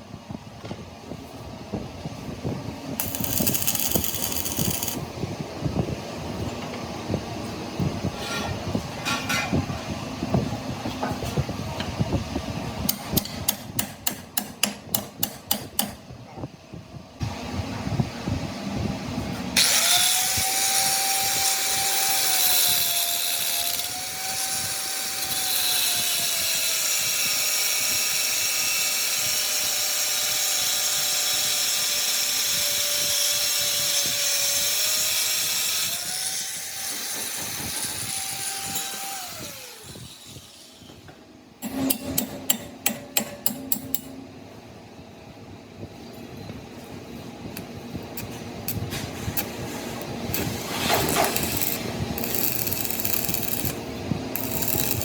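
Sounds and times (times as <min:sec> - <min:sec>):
electric power tool whining: 0:03.0 - 0:05.0, 0:19.6 - 0:41.1, 0:50.3 - 0:53.8.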